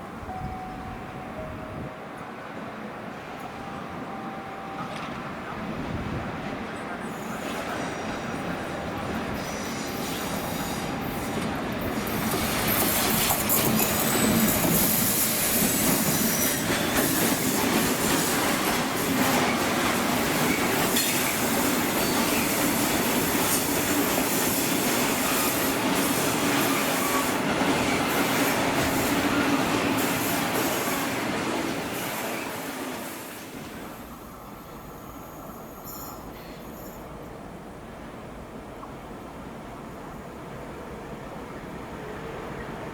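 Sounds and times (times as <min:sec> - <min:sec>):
train wheels on rails: 0:01.4 - 0:42.9.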